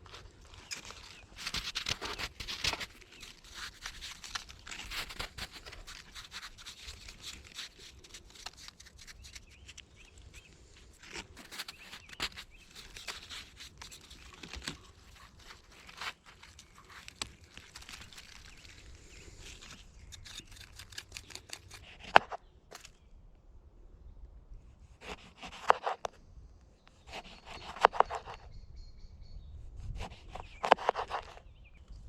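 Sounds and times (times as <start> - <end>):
rustling and crinkling: 0.0 - 23.1, 27.0 - 28.4, 30.0 - 31.5.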